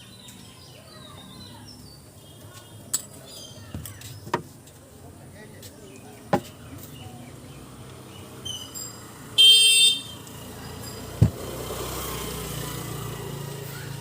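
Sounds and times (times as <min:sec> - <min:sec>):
vehicle horn honk: 0:09.4 - 0:10.2.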